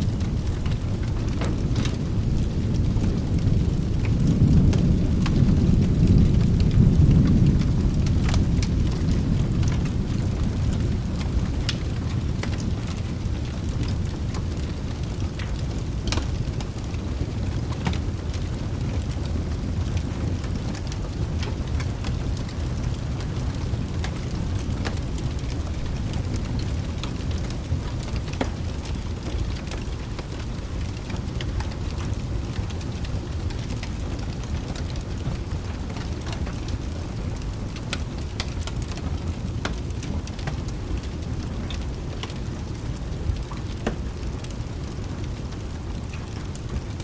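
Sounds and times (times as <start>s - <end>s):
low thunder rumble: 0.0s - 47.0s
rain hiss: 0.0s - 47.0s
wood fire crackling: 0.0s - 47.0s.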